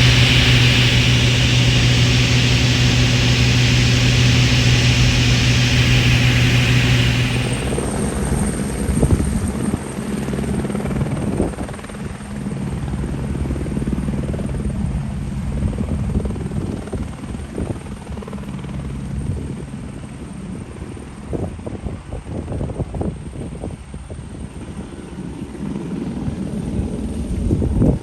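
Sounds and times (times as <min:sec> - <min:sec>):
helicopter engine and rotor hum: 0:00.0 - 0:07.9.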